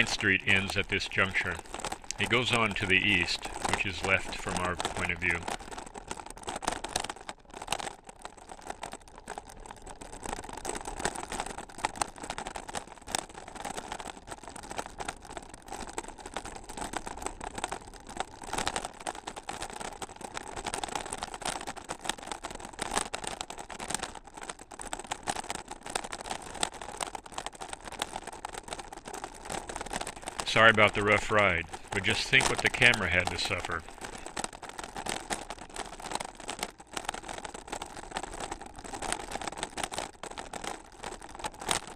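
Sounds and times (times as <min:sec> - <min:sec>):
tyre noise: 0:00.0 - 0:08.0
bicycle rattling and clattering: 0:00.0 - 0:31.9, 0:33.7 - 0:41.9.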